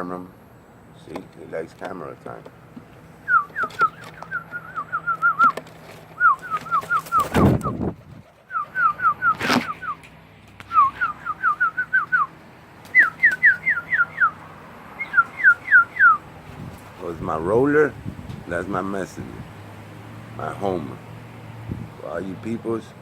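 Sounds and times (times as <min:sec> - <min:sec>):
person whistling falling notes: 0:03.3 - 0:05.6, 0:06.2 - 0:07.8, 0:10.7 - 0:12.3.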